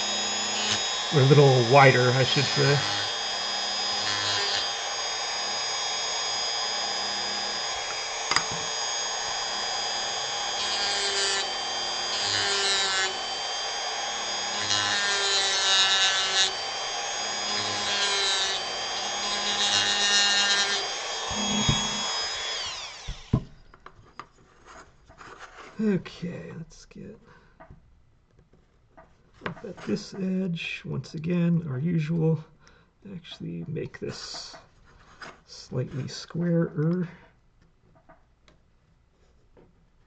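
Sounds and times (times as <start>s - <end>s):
bit grinding into wood: 0.0s - 23.6s
rotary tool whining: 0.0s - 25.8s.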